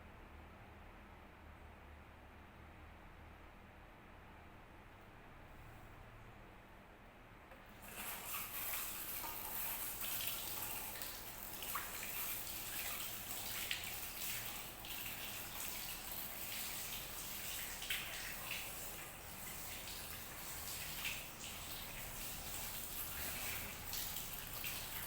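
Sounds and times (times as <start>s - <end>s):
water running from a tap: 7.8s - 25.0s
water splashes and drips: 7.8s - 25.0s.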